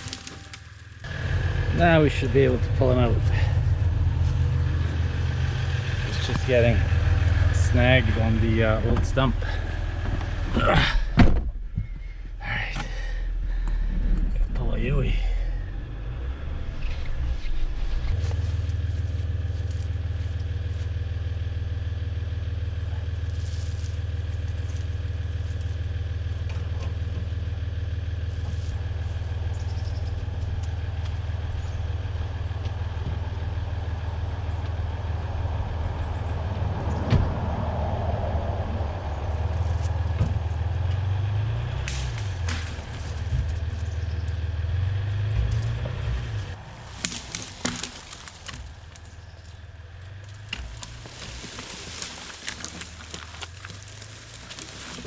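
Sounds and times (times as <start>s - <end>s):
tree cracking: 0.0s - 1.0s, 45.6s - 55.0s
truck engine under load: 0.0s - 55.0s.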